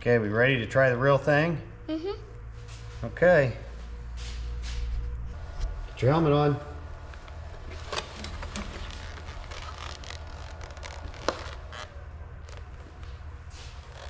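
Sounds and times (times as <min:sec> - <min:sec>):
steady low hum: 0:00.0 - 0:14.0
plastic rustling: 0:07.7 - 0:14.0.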